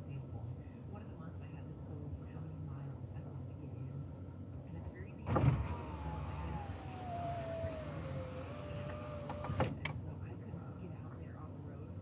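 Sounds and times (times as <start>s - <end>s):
electric window motor whine: 5.3s - 9.8s
window motor clunk: 5.3s - 9.9s.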